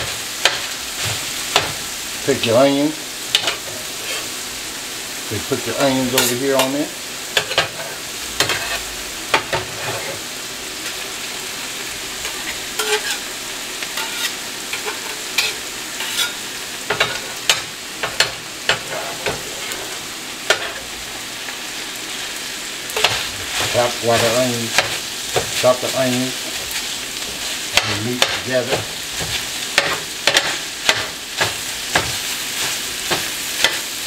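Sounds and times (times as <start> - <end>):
meat sizzling on a griddle: 0.0 - 34.0
metal utensil scraping a pan: 3.3 - 4.3, 5.8 - 6.7, 7.4 - 10.2, 12.2 - 13.3, 14.0 - 17.2, 18.2 - 20.9, 22.9 - 26.0.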